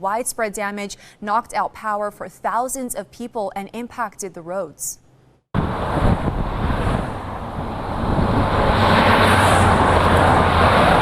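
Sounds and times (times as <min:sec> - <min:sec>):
road traffic rumble: 0:05.6 - 0:11.0.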